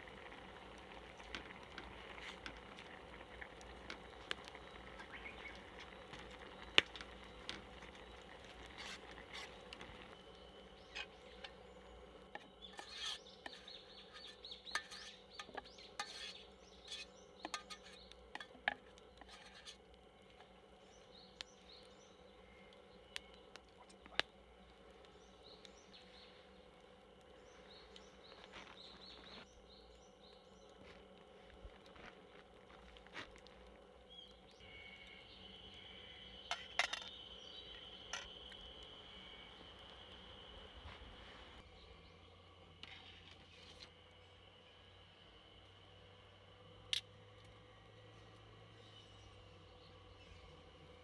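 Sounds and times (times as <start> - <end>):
faint bird chirps: 3.8 - 18.2, 34.1 - 44.8.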